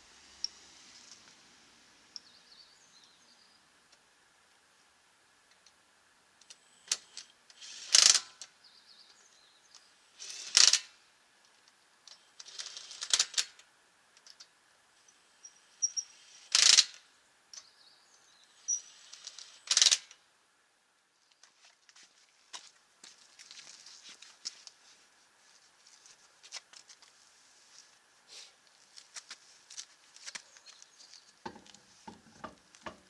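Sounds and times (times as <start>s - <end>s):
impact wrench hammering: 31.5s - 33.0s.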